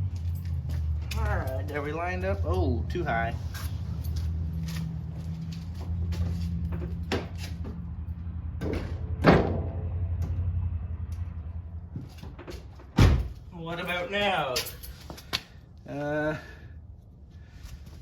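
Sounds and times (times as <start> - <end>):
low engine hum: 0.0 - 13.6
metal clanks and knocks: 8.6 - 10.5.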